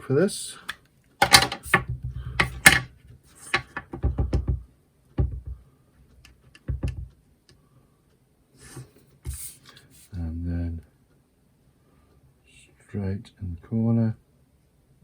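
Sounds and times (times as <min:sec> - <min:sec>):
craft tools tapping on desk: 0:01.2 - 0:05.6, 0:06.6 - 0:07.2.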